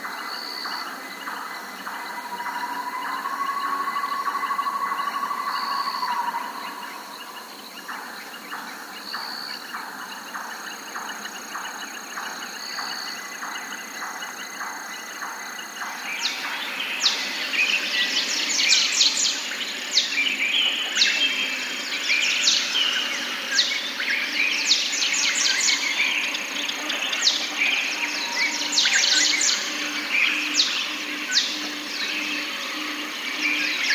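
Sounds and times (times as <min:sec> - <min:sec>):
birds chirping and whistling: 0:02.2 - 0:07.3, 0:16.1 - 0:32.7.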